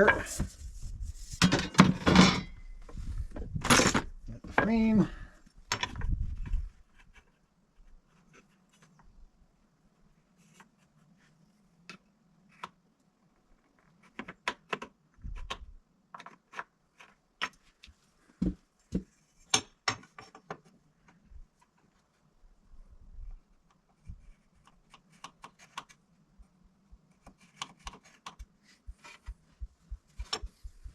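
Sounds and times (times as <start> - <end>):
hand tools clicking and tapping: 30.1 - 30.8.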